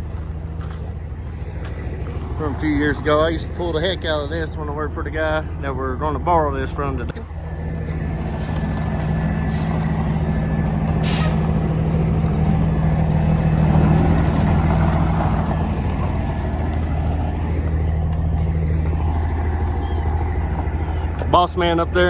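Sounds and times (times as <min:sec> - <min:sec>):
diesel truck engine idling: 0:00.0 - 0:22.0
air brake hiss: 0:11.0 - 0:11.6.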